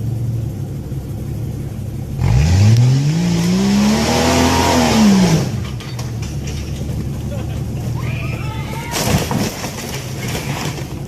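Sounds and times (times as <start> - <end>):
off-road engine revving: 1.9 - 8.5.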